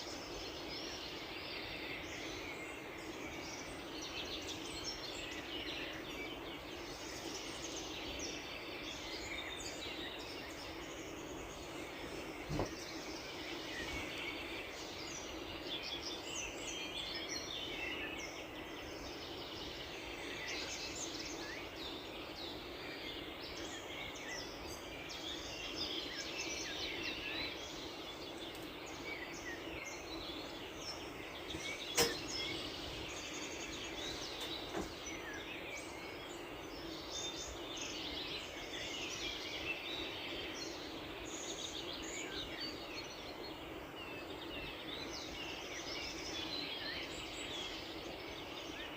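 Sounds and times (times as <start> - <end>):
small birds chirping: 0.0 - 48.9
sharp click: 31.9 - 32.3.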